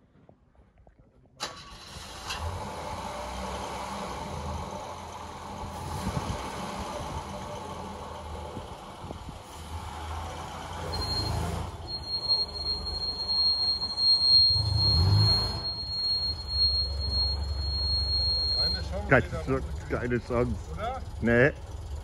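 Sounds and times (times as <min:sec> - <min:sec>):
car engine rumbling unevenly: 0:01.4 - 0:22.0
high-pitched brake squeal: 0:10.7 - 0:19.8.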